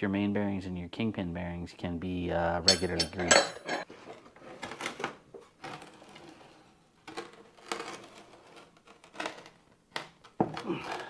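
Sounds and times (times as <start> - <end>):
metal parts and tools clinking: 2.7 - 3.9.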